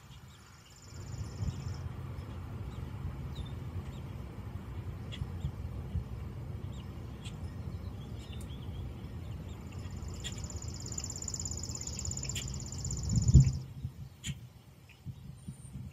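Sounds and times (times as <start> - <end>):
bird chirps: 6.6 - 15.6
songbird trilling: 6.7 - 14.4.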